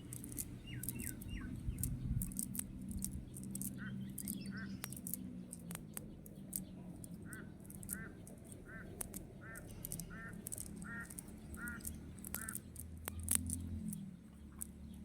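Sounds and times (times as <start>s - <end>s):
sharp clicks: 0.0s - 15.0s
bird giving nasal calls: 7.3s - 12.6s.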